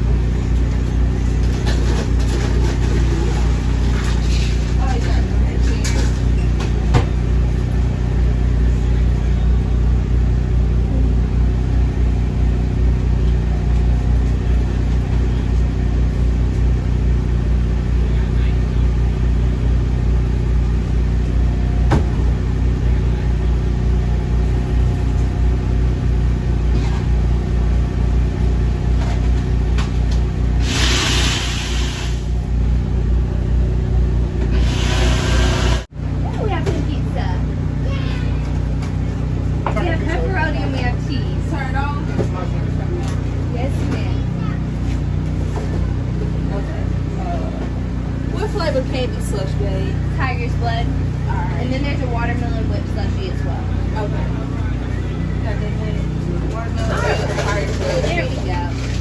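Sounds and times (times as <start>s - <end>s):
machinery humming: 0.0s - 59.0s
brief hiss: 30.6s - 32.3s.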